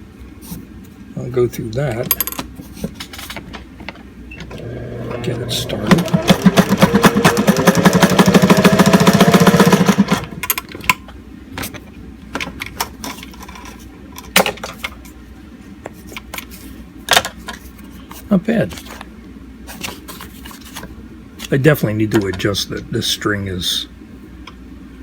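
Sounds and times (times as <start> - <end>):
sewing machine motor and needle: 4.5 - 10.6.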